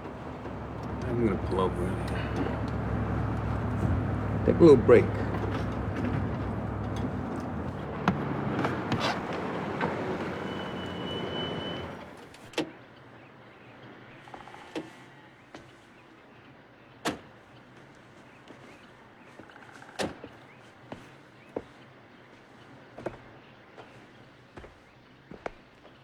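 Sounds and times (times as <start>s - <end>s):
car engine running: 0.0s - 12.2s
high squeal: 0.0s - 12.2s.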